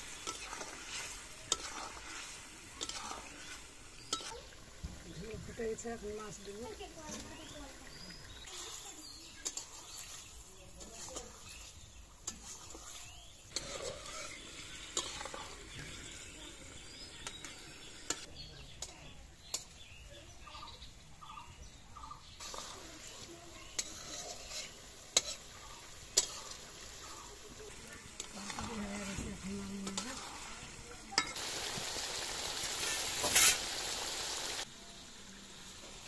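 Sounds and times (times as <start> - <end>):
metal spatula scraping pan: 0.0 - 4.4, 8.6 - 16.4, 22.4 - 27.5, 28.1 - 31.4, 32.8 - 33.7
food sizzling in a pan: 0.0 - 20.8, 22.0 - 36.0.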